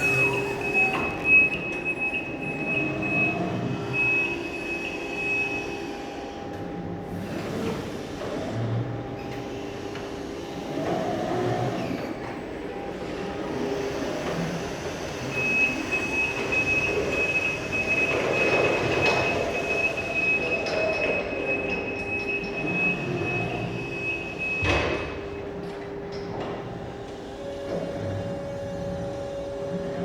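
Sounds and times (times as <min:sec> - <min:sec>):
high-pitched hydraulic tone: 0:00.0 - 0:04.0.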